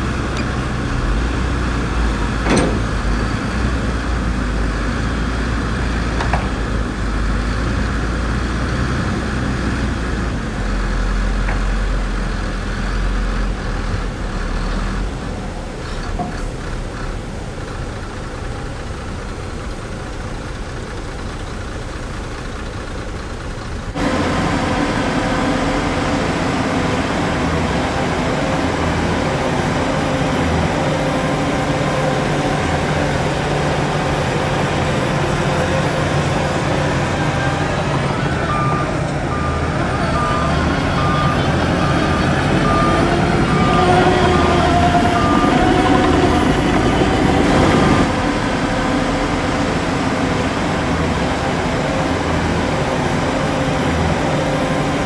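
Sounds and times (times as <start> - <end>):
earthmoving machinery diesel engines: 0.0 - 55.0
reversing alarm beeping: 32.2 - 48.2.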